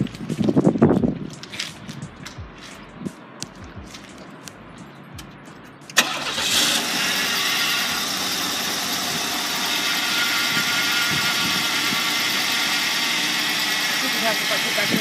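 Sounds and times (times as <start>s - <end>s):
car engine idling: 2.0s - 15.0s.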